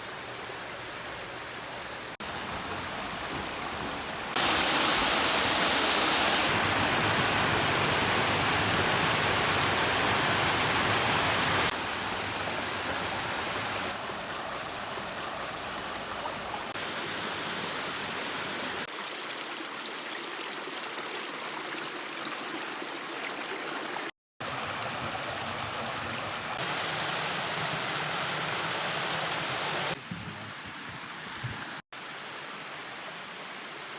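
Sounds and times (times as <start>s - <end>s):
water rushing over cascades: 2.2s - 18.9s, 23.0s - 30.0s.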